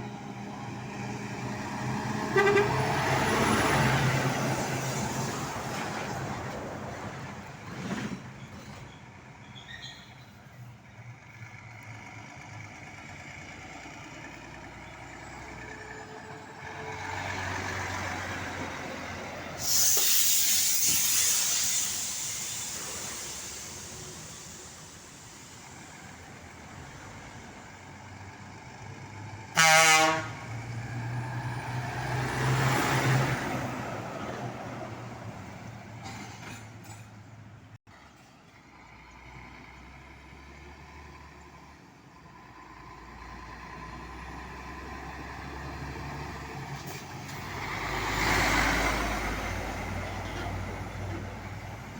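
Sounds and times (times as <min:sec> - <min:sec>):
heavy trucks passing: 0:00.0 - 0:51.9
truck air horn blast: 0:02.2 - 0:03.2, 0:29.5 - 0:30.6.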